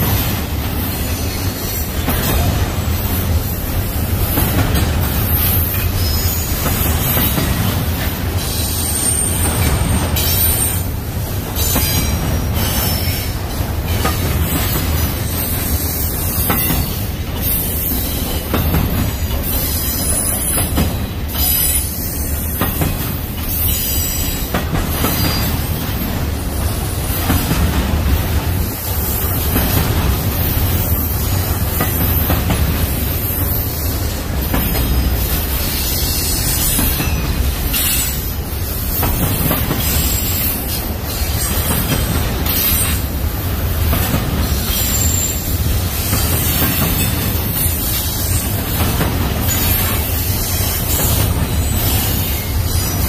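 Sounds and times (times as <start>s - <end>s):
steel wheels rumbling on rail: 0.0s - 53.0s
high-pitched wheel squeals: 5.2s - 7.2s, 8.5s - 10.9s.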